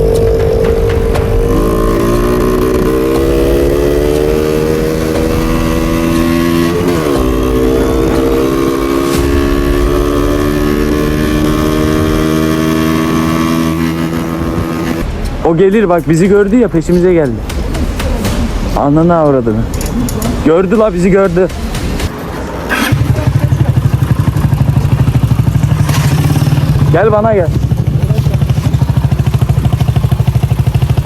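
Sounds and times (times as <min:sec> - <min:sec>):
motorcycle engine revving: 0:00.0 - 0:15.1, 0:22.7 - 0:31.0.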